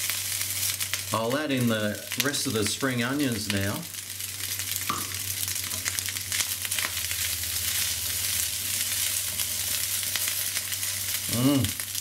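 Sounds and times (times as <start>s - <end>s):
rice sizzling in frying pan: 0.0s - 12.0s.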